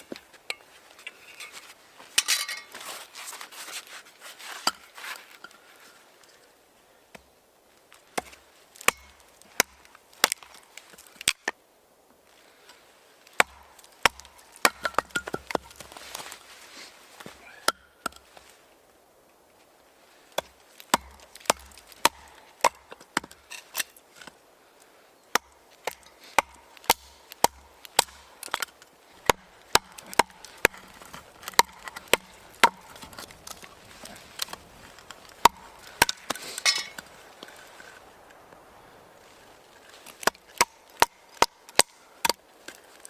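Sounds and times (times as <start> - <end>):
short rustle: 0.0 - 6.2
blade chopping wood: 8.2 - 11.4, 13.4 - 16.4, 20.4 - 24.4, 25.4 - 37.7, 40.0 - 42.8.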